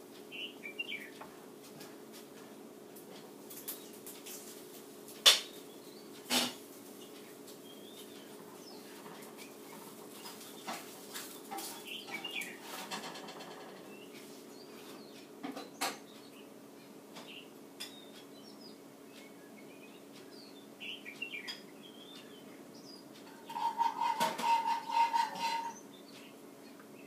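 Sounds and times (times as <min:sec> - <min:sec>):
faint songbird chirps: 0:00.3 - 0:01.2, 0:07.0 - 0:10.8, 0:11.7 - 0:12.7, 0:13.9 - 0:23.8, 0:25.6 - 0:27.0.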